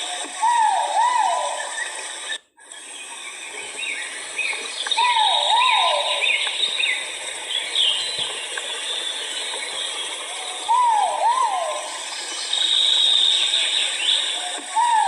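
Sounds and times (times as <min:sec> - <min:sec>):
high background hiss: 0:00.0 - 0:15.0
pheasant whistled call: 0:00.2 - 0:02.0, 0:03.8 - 0:07.0, 0:10.5 - 0:15.0.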